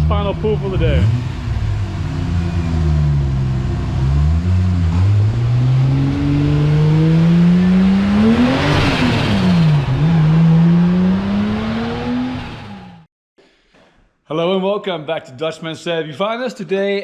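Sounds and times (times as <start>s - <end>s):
car engine revving at full throttle: 0.0s - 13.1s.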